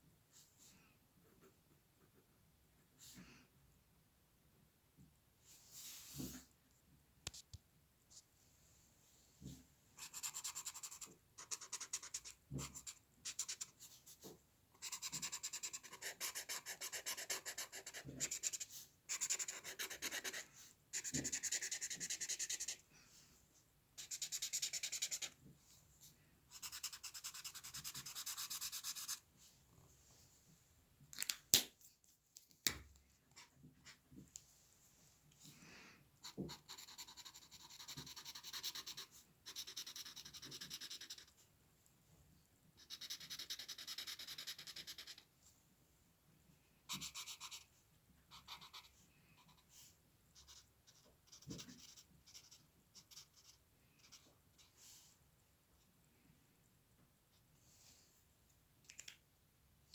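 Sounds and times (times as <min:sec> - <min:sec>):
pencil scratching on paper: 0:10.0 - 0:22.8, 0:24.0 - 0:25.4, 0:26.5 - 0:29.2, 0:36.2 - 0:41.4, 0:42.8 - 0:45.2, 0:46.9 - 0:47.7, 0:48.3 - 0:49.8, 0:50.4 - 0:54.7.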